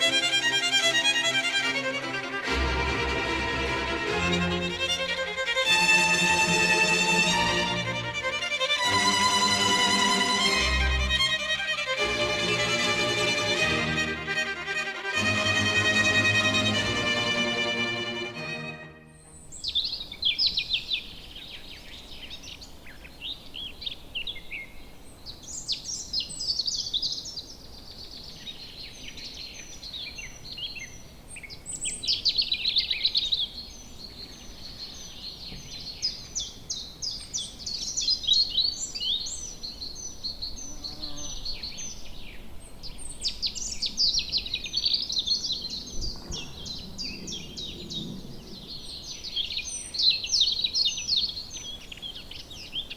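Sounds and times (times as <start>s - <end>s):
small birds chirping: 0.0s - 1.7s, 19.1s - 52.9s.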